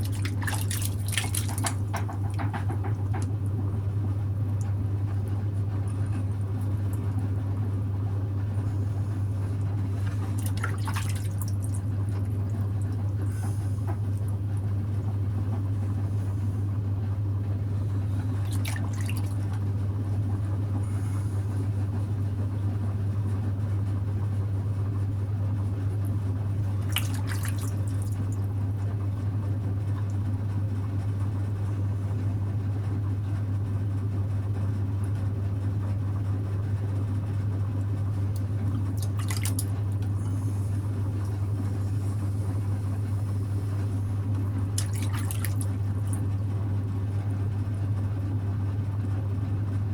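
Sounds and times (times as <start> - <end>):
sharp wet splashes: 0.0 - 2.0, 10.0 - 11.8, 18.4 - 19.4, 26.8 - 28.2, 38.7 - 39.8, 44.7 - 46.2
wet clay squelching: 0.0 - 2.0, 9.9 - 12.3, 38.7 - 40.1, 44.7 - 46.2
potter's wheel humming: 0.0 - 49.9.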